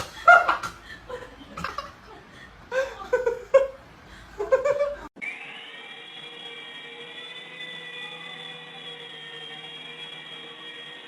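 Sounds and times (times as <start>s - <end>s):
person laughing: 0.0s - 5.1s.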